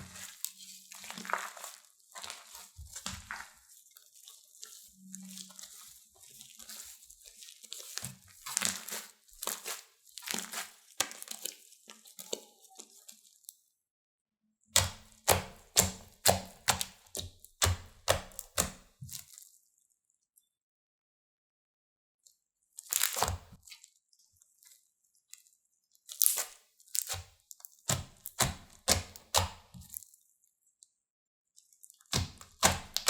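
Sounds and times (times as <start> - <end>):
slime crackling and popping: 0.0 - 3.5, 7.8 - 12.5, 14.8 - 19.3, 22.8 - 23.6, 26.1 - 30.0, 32.0 - 33.0.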